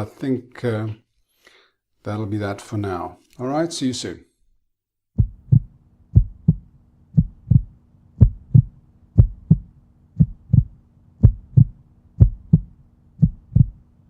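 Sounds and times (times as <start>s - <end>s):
paired low thumps like heartbeat: 5.2s - 13.8s
faint low hum: 5.2s - 14.0s.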